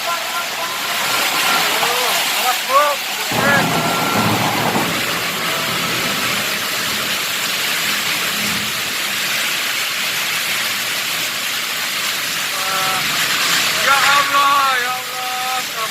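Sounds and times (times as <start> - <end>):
heavy rain in wind: 0.0 - 15.9.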